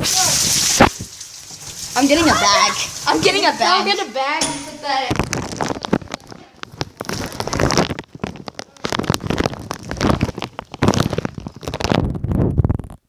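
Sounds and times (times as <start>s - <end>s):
bag rustling and crinkling: 4.8s - 13.0s.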